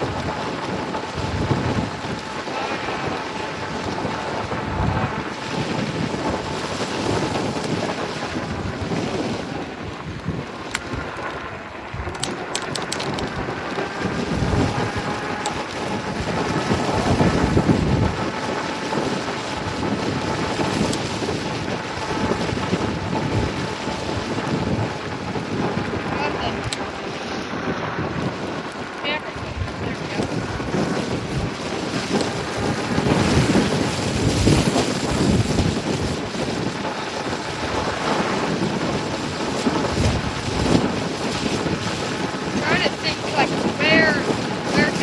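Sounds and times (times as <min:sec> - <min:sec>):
wind buffeting microphone: 0:00.0 - 0:45.0
faint clicks: 0:12.1 - 0:13.4.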